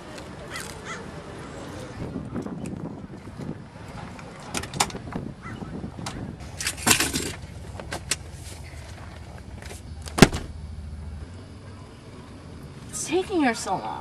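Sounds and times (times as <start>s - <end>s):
low steady rumble: 2.0s - 14.0s
sharp knock: 10.2s - 10.5s.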